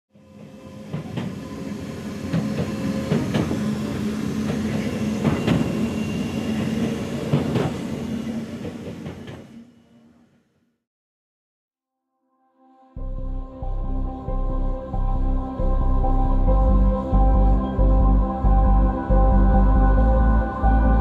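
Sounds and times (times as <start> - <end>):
train rumble inside carriage: 0.2 - 9.6
wheels clicking on rail joints: 0.9 - 9.5.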